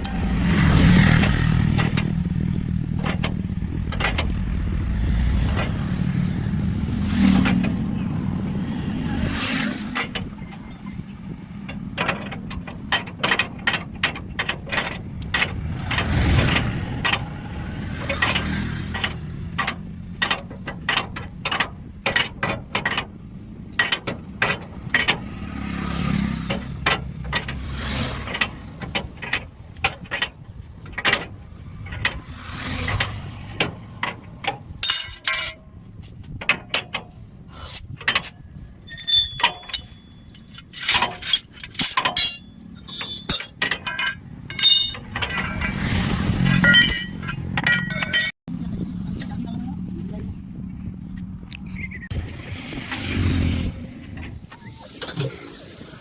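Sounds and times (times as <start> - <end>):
hand tools clicking on metal: 28.2 - 35.6, 36.3 - 48.4.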